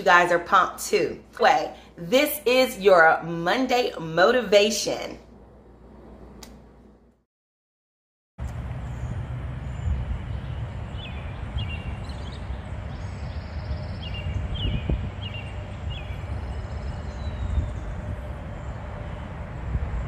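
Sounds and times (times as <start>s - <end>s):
bird chirping: 8.4s - 19.3s
low outdoor rumble: 8.4s - 20.0s.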